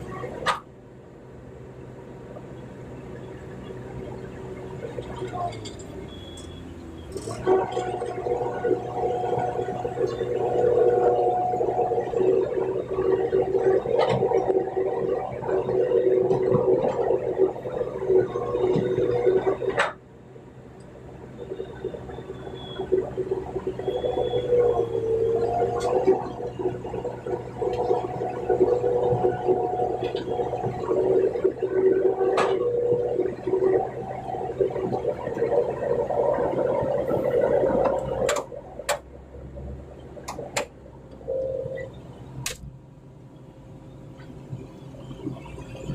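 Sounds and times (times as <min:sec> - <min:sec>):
excavator engine and hydraulics: 0:00.0 - 0:45.9.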